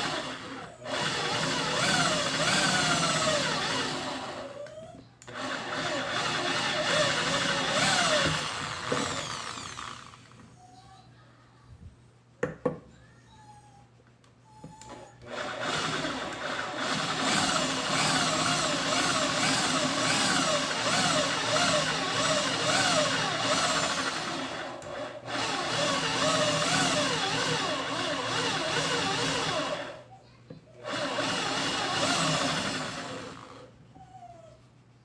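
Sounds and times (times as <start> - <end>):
small electric drill motor running: 0.0 - 4.6, 5.3 - 10.4, 15.3 - 30.0, 30.8 - 33.7.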